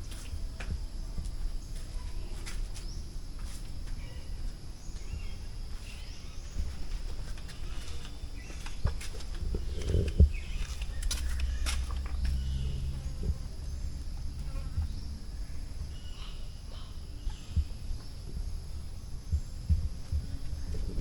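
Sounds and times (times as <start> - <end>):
footsteps: 0.0 - 12.4
insects buzzing: 0.0 - 21.0.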